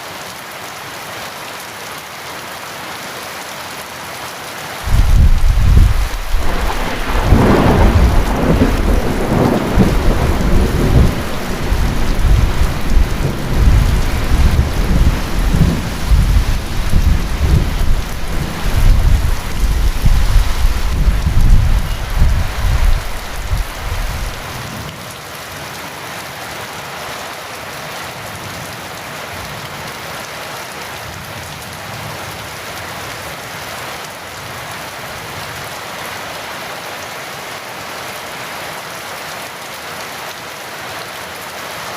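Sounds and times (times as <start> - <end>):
heavy rain hiss: 0.0 - 41.9
rolling thunder: 4.9 - 24.6.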